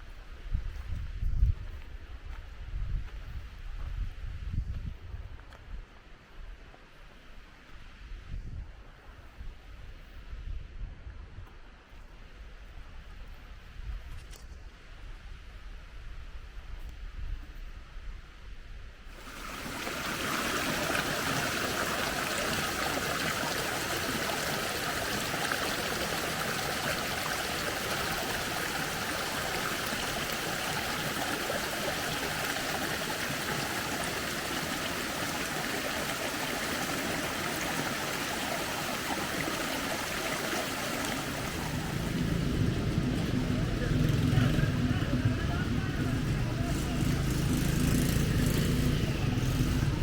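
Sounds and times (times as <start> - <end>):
running water rushing: 19.1 - 50.0
quiet low rumble: 41.3 - 47.2.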